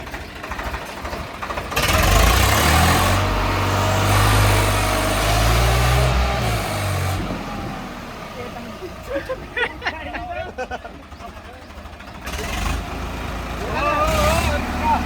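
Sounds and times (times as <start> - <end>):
tractor diesel engine revving: 0.0 - 15.0.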